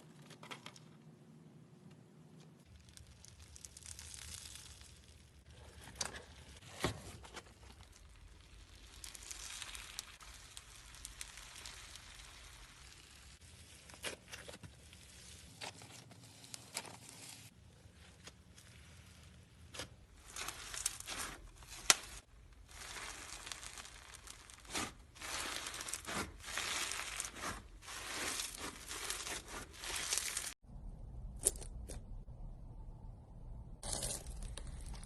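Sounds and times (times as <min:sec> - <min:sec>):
slime crackling and tearing: 0:02.6 - 0:05.5, 0:07.7 - 0:30.6.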